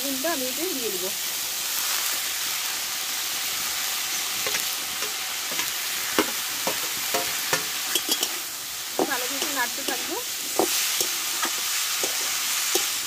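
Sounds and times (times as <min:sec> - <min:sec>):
vegetables sizzling in oil: 0:00.0 - 0:13.0
spatula scraping metal pan: 0:04.5 - 0:08.4.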